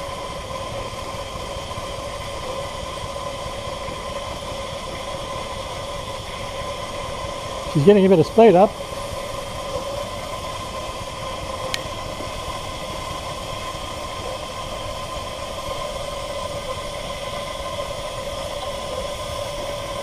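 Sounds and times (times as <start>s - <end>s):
steam engine hissing: 0.0s - 20.0s.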